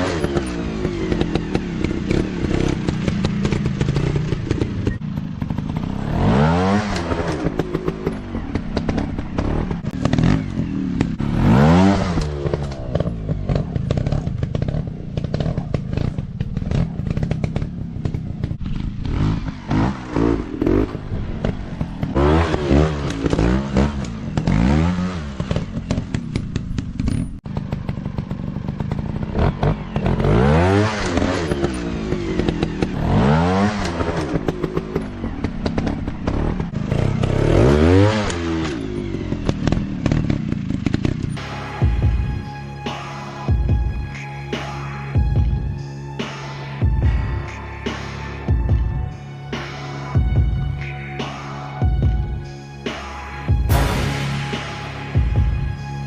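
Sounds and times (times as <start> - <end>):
dirt bike engines revving: 0.0 - 56.0
bursts of clatter: 0.2 - 41.5.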